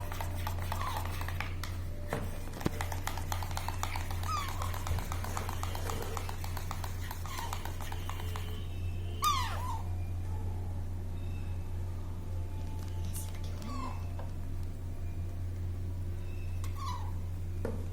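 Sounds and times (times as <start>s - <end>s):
steady low hum: 0.0s - 17.9s
baby parrot squeaky calls: 3.8s - 5.0s, 9.2s - 9.9s, 16.3s - 17.2s.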